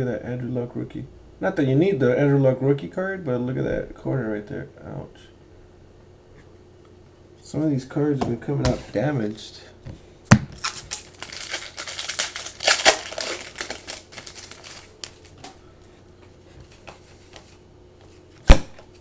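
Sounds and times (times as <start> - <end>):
packaging crinkling: 10.6 - 15.5.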